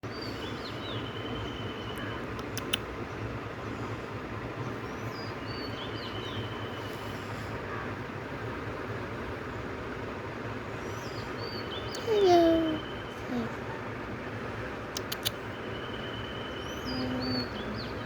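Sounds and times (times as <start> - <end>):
sharp clicks: 2.3 - 2.9, 14.9 - 15.4.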